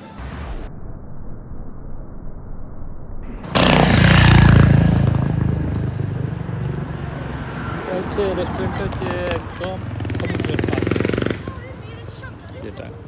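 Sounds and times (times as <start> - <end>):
motor vehicle passing: 3.4 - 13.0.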